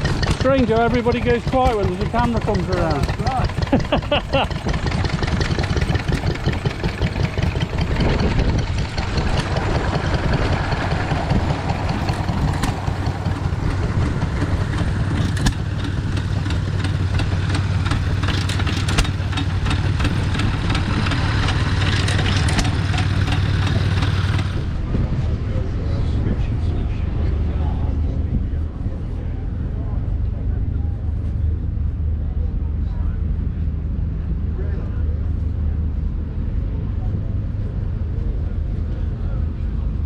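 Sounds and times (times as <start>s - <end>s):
tractor diesel engine running: 0.0s - 24.9s.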